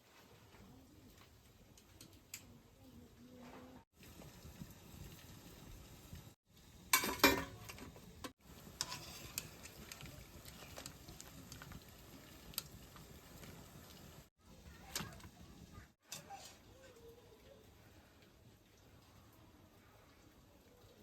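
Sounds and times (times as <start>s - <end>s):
spoon stirring and scraping pot: 7.0s - 13.6s.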